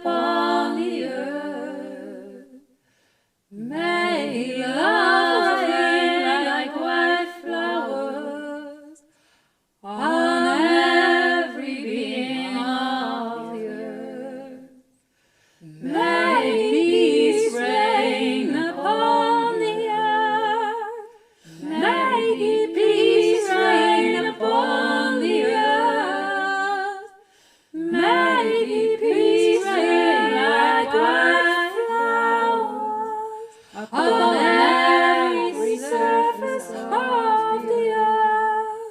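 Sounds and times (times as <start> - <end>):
a cappella wordless vocal chant: 0.0 - 2.8, 3.4 - 14.9, 15.5 - 38.9.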